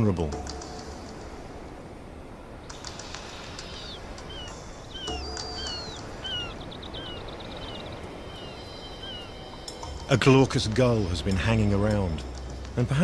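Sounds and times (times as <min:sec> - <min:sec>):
low wind hiss: 0:00.0 - 0:13.0
small birds chirping: 0:00.0 - 0:13.0
fast ticking bird notes: 0:02.6 - 0:13.0.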